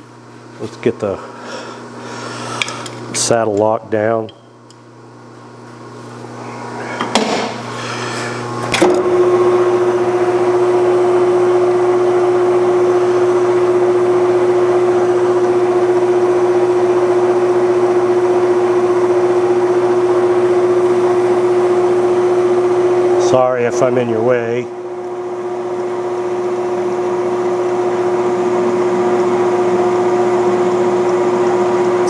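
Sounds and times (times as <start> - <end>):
metal lathe running: 8.3 - 32.0.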